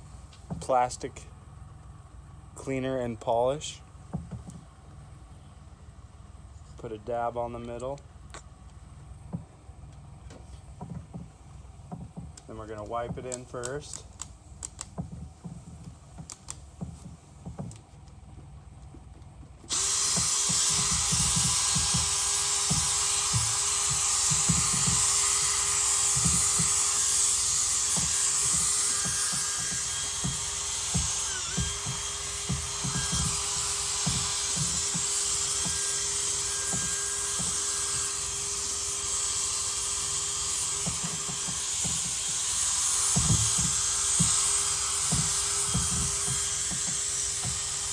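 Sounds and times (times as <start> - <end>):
power drill buffing hum and hiss: 19.7 - 47.9.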